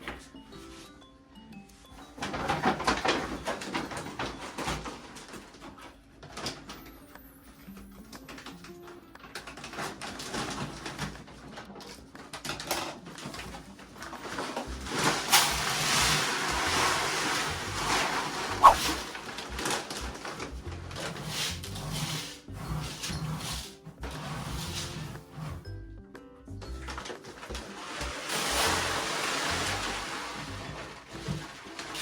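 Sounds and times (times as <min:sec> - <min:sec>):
cat litter rustling and scraping: 0:02.0 - 0:06.9, 0:09.2 - 0:25.7, 0:26.9 - 0:32.0
brief high squeak: 0:18.6 - 0:19.0.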